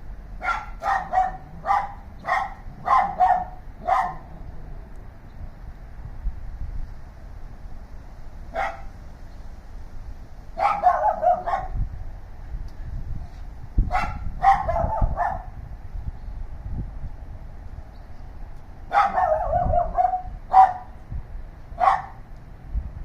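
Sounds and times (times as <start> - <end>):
low background rumble: 0.0 - 23.0
dogs barking: 0.4 - 4.4, 8.5 - 9.0, 10.6 - 11.8, 13.9 - 15.6, 18.9 - 21.0, 21.8 - 22.2.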